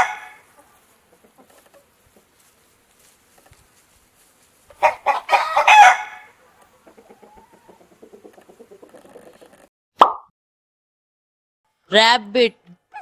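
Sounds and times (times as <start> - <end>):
chicken calling: 0.0 - 2.4, 4.6 - 9.7, 12.7 - 13.0.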